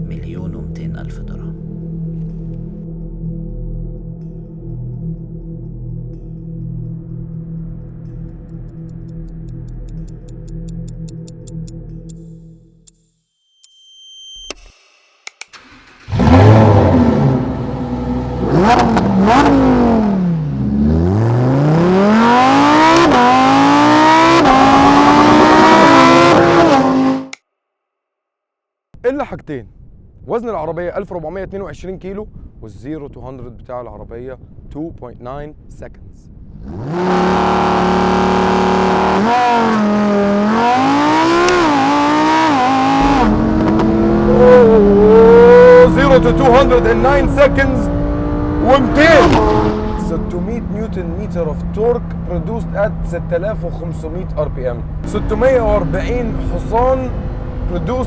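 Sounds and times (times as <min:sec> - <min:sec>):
sports car engine revving: 0:15.6 - 0:27.4, 0:36.6 - 0:58.0.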